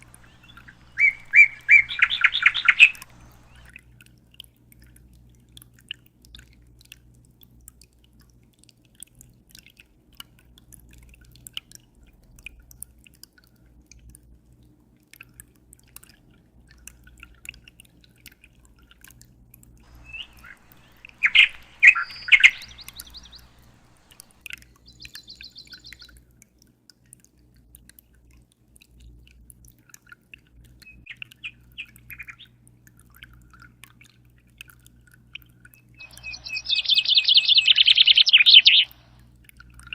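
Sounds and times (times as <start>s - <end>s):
small birds chirping: 0.0s - 3.7s, 19.9s - 26.2s, 30.8s - 32.6s, 35.8s - 39.2s
low steady hum: 0.0s - 5.4s, 19.4s - 26.2s, 30.6s - 39.9s.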